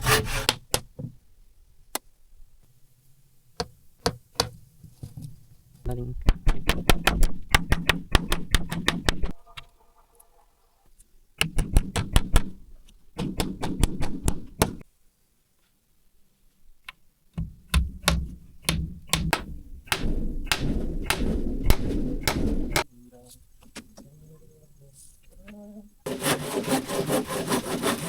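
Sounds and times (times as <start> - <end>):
rapid knocking on wood: 17.4 - 22.9.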